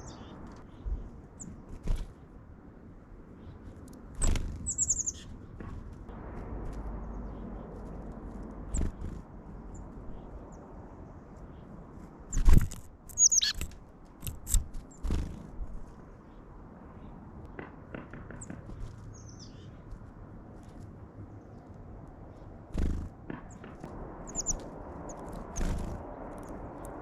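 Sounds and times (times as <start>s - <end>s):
thumps and wing flutters: 1.5s - 2.3s, 4.1s - 4.7s, 5.3s - 9.4s, 12.3s - 15.9s, 17.5s - 19.1s, 22.7s - 27.0s
short high bird chirps: 13.1s - 13.6s.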